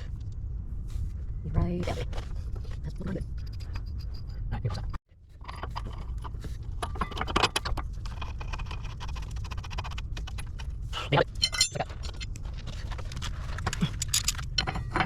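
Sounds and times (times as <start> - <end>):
wrenches clinking on metal bolts: 11.2 - 12.4, 13.0 - 15.0.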